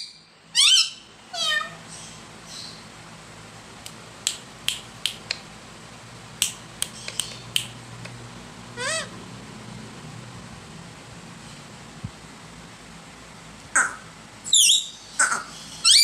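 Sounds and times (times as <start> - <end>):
parrot call: 0.0 - 2.8, 8.8 - 9.2, 13.8 - 16.0
sharp clicks: 3.8 - 5.4, 6.4 - 7.8.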